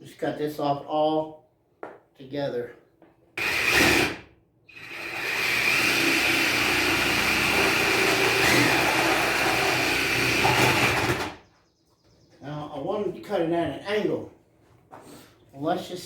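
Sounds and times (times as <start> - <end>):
power cutting tool whining: 3.4 - 11.4.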